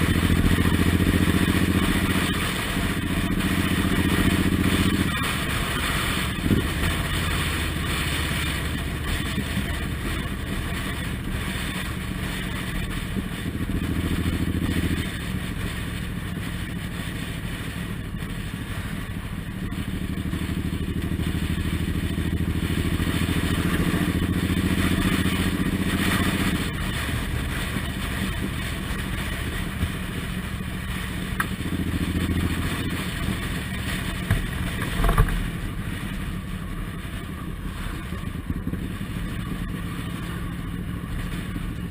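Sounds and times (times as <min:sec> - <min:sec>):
motorcycle engine running: 0:00.0 - 0:41.9
road noise: 0:00.0 - 0:41.9.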